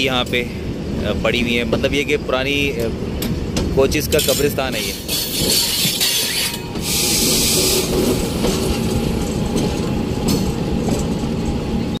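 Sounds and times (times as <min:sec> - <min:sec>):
train wheels and coach rattle: 0:00.0 - 0:12.0.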